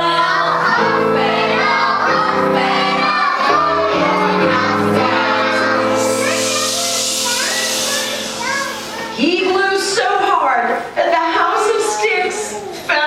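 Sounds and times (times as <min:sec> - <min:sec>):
children singing: 0:00.0 - 0:10.4, 0:11.2 - 0:13.0
sustained instrumental chords: 0:00.6 - 0:10.3
hissy noise: 0:02.6 - 0:10.2.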